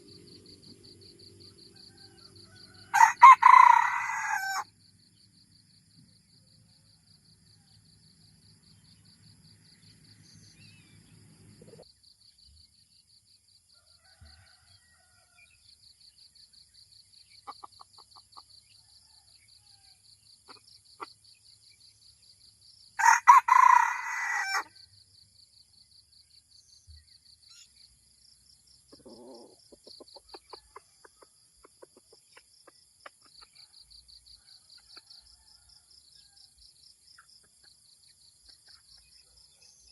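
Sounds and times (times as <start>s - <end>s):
rooster crowing: 1.6s - 4.7s, 13.8s - 15.5s, 23.0s - 24.8s
soft clucks: 17.4s - 18.5s, 28.9s - 33.6s.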